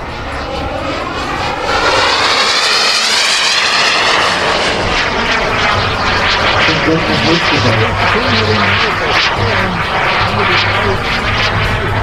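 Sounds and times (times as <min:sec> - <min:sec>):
model aircraft engine flying past: 0:00.0 - 0:12.0.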